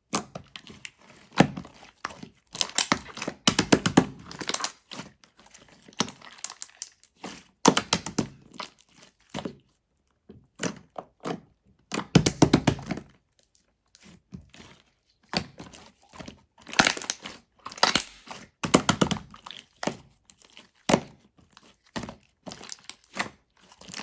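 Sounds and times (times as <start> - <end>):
crinkling and rustling: 14.0 - 18.5, 19.4 - 24.0.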